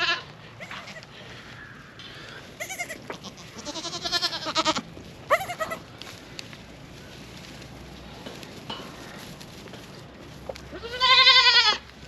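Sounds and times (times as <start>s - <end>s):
goats bleating: 0.0s - 1.2s, 2.2s - 6.0s, 10.7s - 11.9s.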